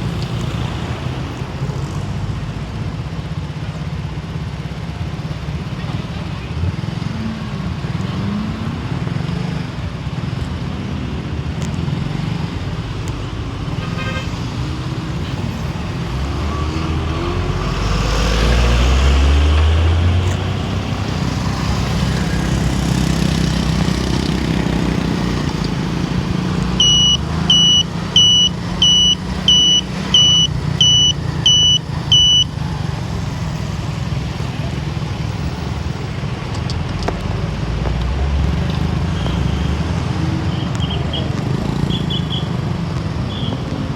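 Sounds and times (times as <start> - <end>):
car engine and road noise: 0.0 - 43.9
high electronic beeps: 26.5 - 32.6.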